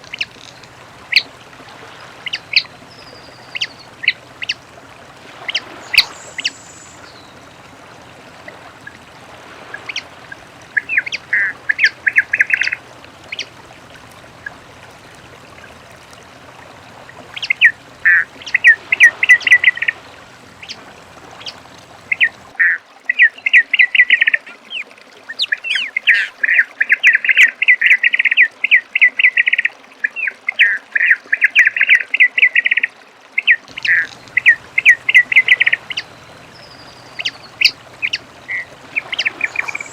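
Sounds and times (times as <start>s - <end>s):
bird singing stuttering notes: 2.2s - 4.6s, 5.4s - 7.7s, 9.8s - 13.6s, 17.2s - 22.5s, 23.1s - 28.0s, 33.4s - 39.9s.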